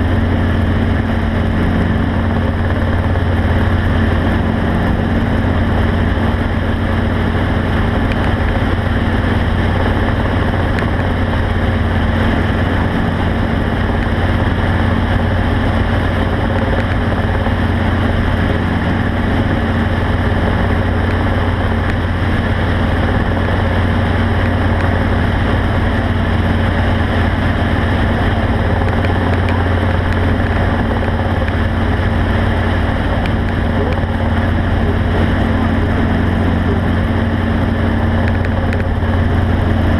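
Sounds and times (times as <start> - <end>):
vehicle engine droning: 0.0 - 39.9.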